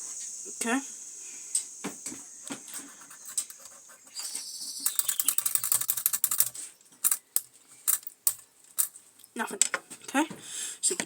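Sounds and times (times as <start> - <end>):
faint steam hiss: 0.0 - 3.2
small metal parts clicking: 3.2 - 3.7, 4.8 - 9.3
metallic rattling: 4.8 - 9.0.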